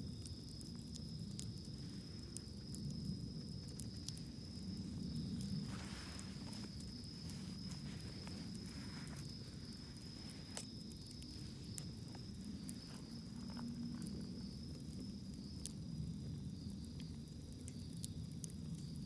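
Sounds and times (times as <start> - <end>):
high insect trill: 0.0 - 17.2
campfire crackling and popping: 0.0 - 19.0
low steady rumble: 1.8 - 15.1.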